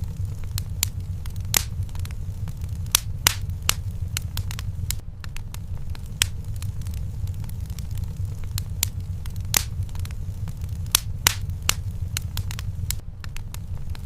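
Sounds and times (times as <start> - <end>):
fire rumbling with crackles: 0.0 - 14.0.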